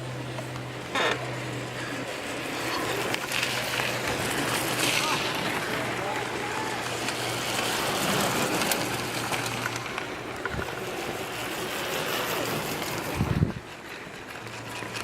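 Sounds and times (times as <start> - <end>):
mini bike engines buzzing: 0.0 - 15.0
wind buffeting microphone: 3.9 - 14.2.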